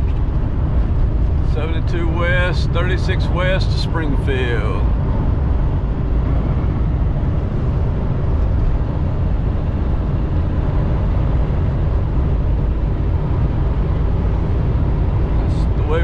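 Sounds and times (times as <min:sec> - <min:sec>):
engine and road rumble: 0:00.0 - 0:16.0
wind blowing against truck: 0:04.3 - 0:15.8.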